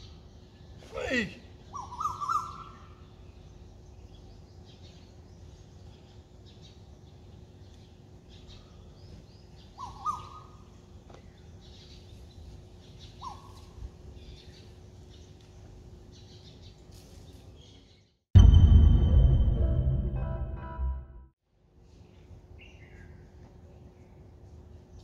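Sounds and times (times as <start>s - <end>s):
bird rising calls: 9.7s - 10.6s.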